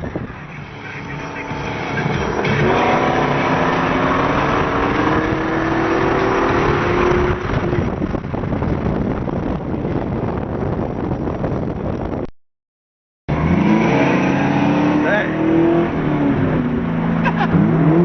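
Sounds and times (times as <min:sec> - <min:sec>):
road noise: 0:00.0 - 0:12.3, 0:13.3 - 0:18.0
car engine accelerating: 0:00.4 - 0:10.2, 0:13.3 - 0:18.0.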